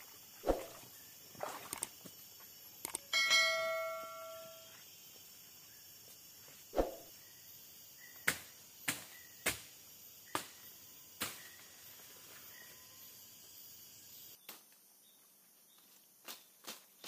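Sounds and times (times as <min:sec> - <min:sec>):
forest insects humming: 0:00.0 - 0:17.0.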